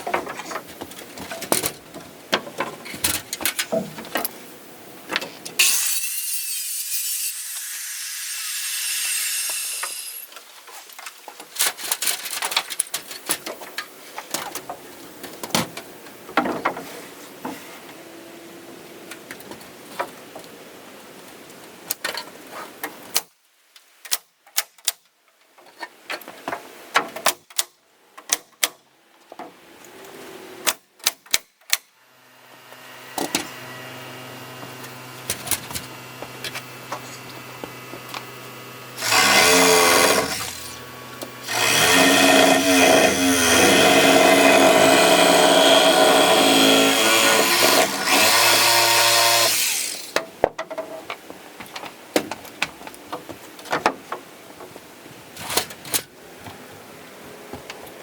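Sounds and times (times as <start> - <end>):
electric power tool humming: 32.4 - 50.2.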